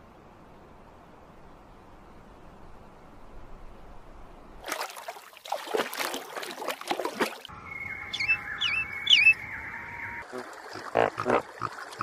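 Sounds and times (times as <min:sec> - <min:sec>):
harsh scratchy bird calls: 0:07.8 - 0:10.2.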